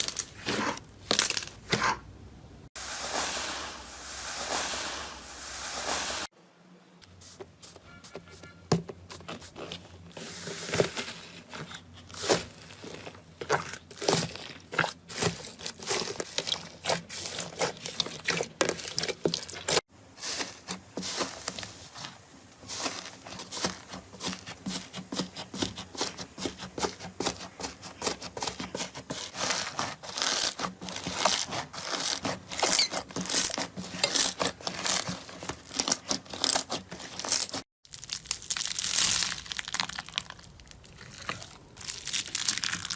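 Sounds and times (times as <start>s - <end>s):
slime crackling and popping: 30.2s - 42.9s.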